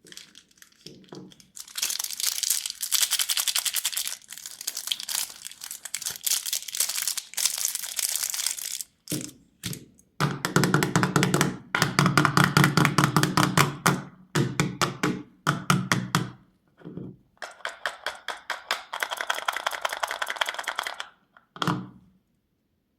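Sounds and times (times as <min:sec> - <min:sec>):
candies clattering into container: 0:00.0 - 0:09.3.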